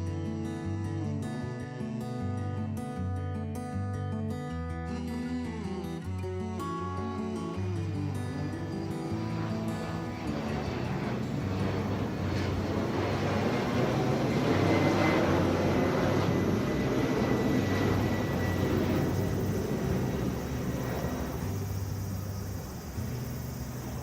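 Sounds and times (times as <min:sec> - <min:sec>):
jet airliner passing overhead: 0:07.0 - 0:24.0.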